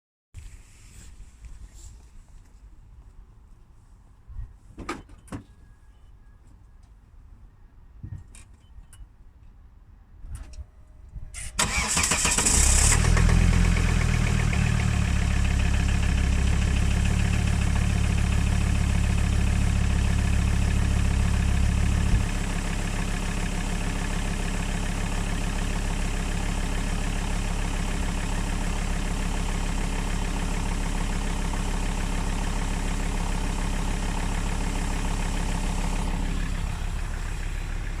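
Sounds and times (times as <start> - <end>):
diesel engine cranking: 11.4 - 22.7
diesel engine idling with knock: 13.0 - 38.0.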